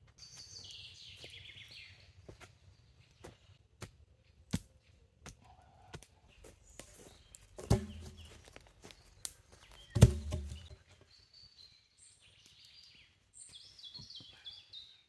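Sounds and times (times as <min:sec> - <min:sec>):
heavy hollow thuds: 0:07.6 - 0:08.4, 0:10.0 - 0:10.8
light knocks on wood: 0:10.0 - 0:10.7.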